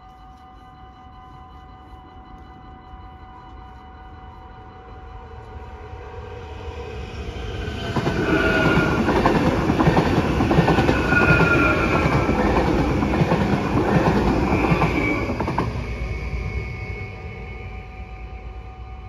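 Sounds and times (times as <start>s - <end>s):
train running rumble: 4.8s - 19.0s
high wheel squeals: 5.7s - 19.0s.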